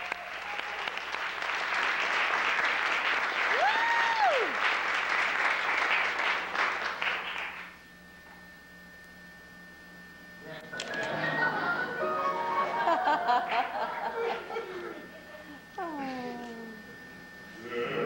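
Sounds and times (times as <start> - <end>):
audience applauding and cheering: 0.0 - 7.8, 12.0 - 14.4
quiet steady hum: 0.0 - 18.0.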